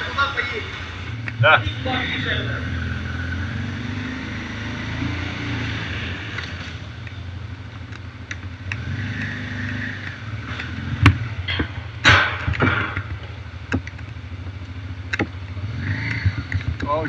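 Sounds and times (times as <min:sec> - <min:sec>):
engine running: 0:00.0 - 0:17.0
sharp knock: 0:11.0 - 0:13.2
small clicks: 0:13.7 - 0:17.0.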